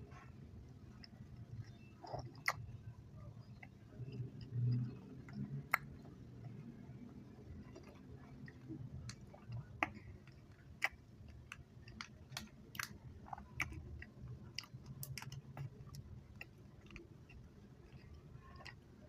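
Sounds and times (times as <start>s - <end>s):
soft low churning: 0.0s - 19.0s
sticky mouth chewing smacks: 0.9s - 2.8s, 3.4s - 6.6s, 7.6s - 18.8s.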